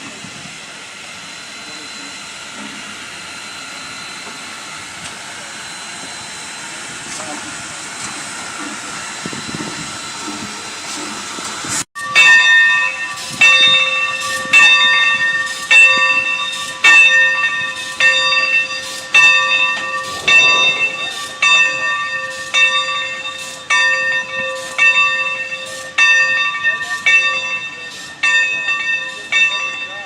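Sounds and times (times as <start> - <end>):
locomotive bell ringing: 12.0 - 30.0.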